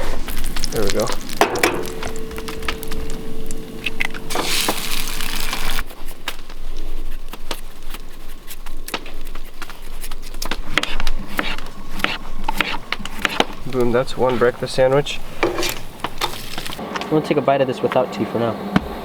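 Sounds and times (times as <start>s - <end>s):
food sizzling in a pan: 0.0s - 5.8s
steady tone: 1.2s - 5.8s.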